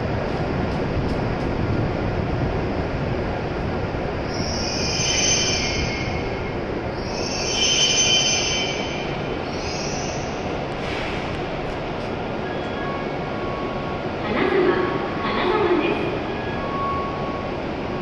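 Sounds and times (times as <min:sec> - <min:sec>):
train running noise: 0:00.0 - 0:18.0
high-pitched brake squeal: 0:04.4 - 0:06.2, 0:07.2 - 0:10.3.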